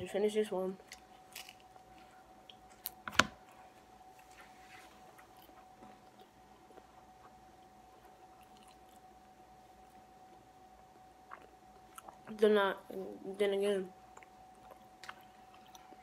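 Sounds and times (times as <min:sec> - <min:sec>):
faint steady hum: 0:00.0 - 0:16.0
mouth chewing food: 0:05.1 - 0:12.4, 0:14.0 - 0:16.0.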